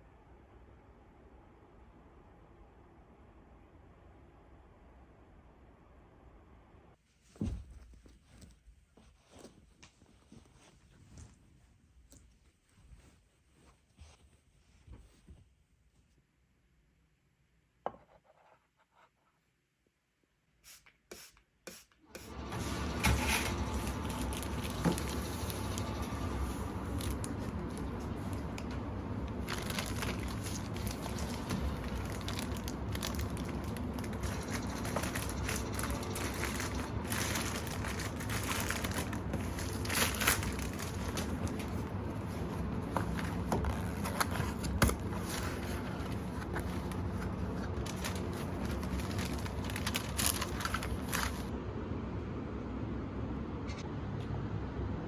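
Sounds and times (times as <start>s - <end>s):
steady low hum: 22.1s - 55.0s.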